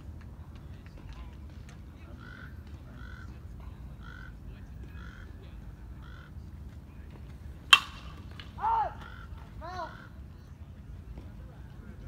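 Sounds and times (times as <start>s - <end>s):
baseball hitting catcher's mitt: 7.7s - 8.7s
bird calling: 8.6s - 10.2s.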